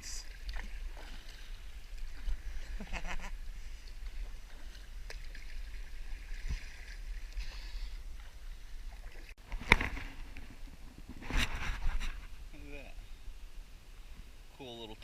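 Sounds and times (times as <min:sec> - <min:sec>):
kayak paddle splashing in water: 0:00.0 - 0:10.8.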